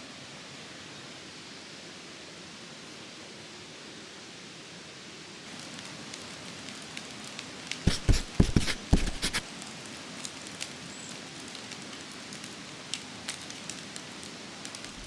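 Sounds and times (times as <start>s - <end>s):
steady rain: 4.2s - 7.8s, 9.4s - 15.0s.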